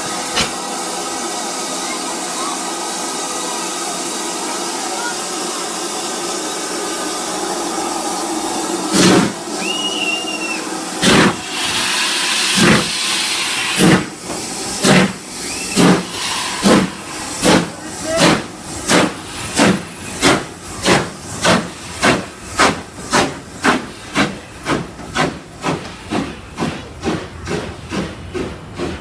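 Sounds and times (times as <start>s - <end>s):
steam hissing: 0.0s - 29.0s
steam locomotive exhaust beats: 0.0s - 29.0s.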